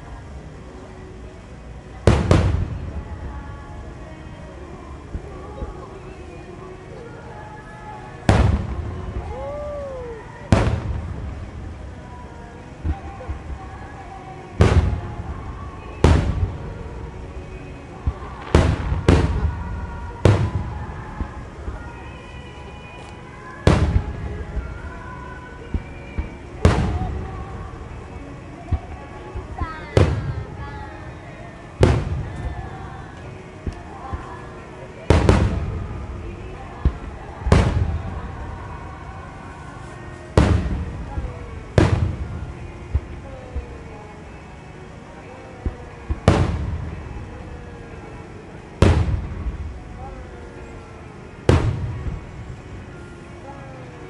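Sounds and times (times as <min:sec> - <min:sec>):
firework booms with rolling rumbles: 0:02.0 - 0:04.0, 0:08.2 - 0:21.9, 0:23.6 - 0:25.1, 0:25.7 - 0:30.7, 0:31.8 - 0:32.9, 0:35.1 - 0:39.6, 0:40.3 - 0:43.9, 0:45.6 - 0:47.9, 0:48.8 - 0:50.0, 0:51.5 - 0:52.6
firework shells booming: 0:08.3 - 0:09.3, 0:10.5 - 0:11.8, 0:18.1 - 0:21.3, 0:48.8 - 0:49.8.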